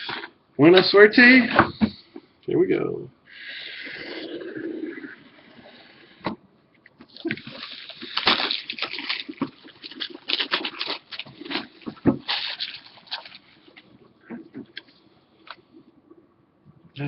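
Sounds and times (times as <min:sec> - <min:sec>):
packaging crinkling and tearing: 0:07.1 - 0:13.9.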